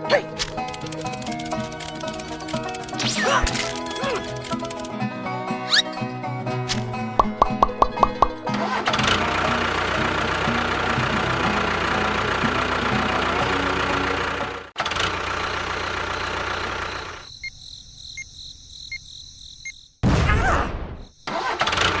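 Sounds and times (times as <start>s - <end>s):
faint regular ticks: 0.4s - 5.0s.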